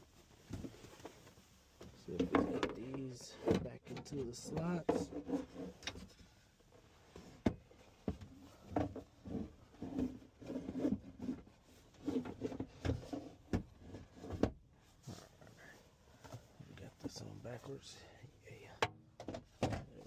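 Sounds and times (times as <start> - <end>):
plastic rubbing and scraping: 0.3 - 17.1.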